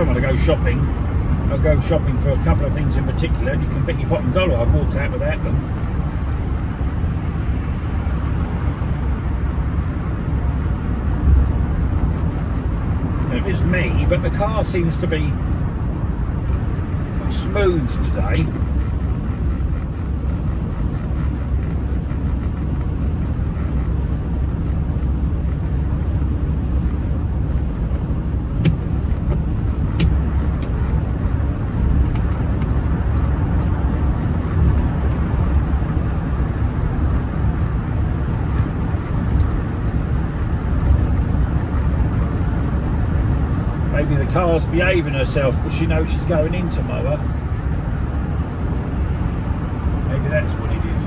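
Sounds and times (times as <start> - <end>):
car engine and road noise: 0.0 - 51.0.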